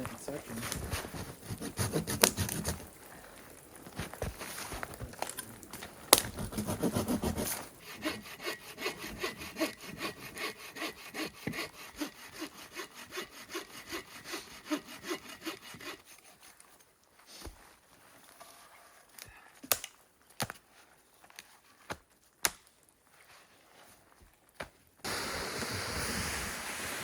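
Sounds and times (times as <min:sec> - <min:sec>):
hand saw cutting wood: 0:00.4 - 0:02.9, 0:06.1 - 0:16.6.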